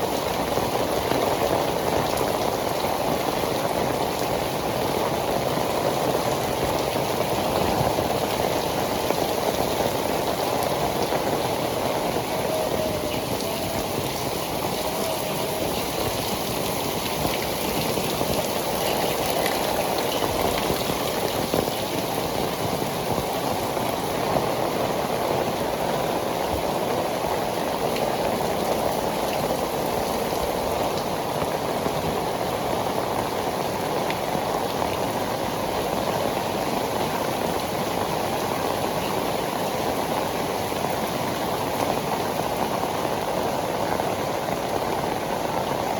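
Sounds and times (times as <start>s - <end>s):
heavy rain on pavement: 0.0s - 45.9s.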